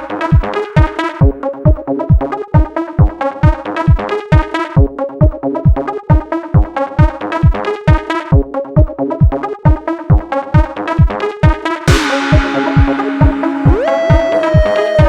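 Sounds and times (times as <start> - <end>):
kick drum: 0.0 - 15.0
synthesizer chords: 11.9 - 15.0.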